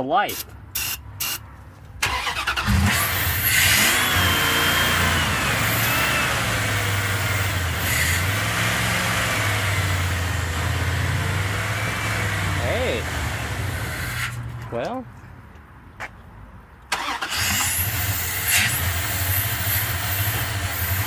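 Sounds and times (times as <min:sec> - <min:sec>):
engine cranking by starter: 0:02.0 - 0:10.3, 0:16.9 - 0:21.0
pickup engine running: 0:02.0 - 0:14.0, 0:17.0 - 0:21.0.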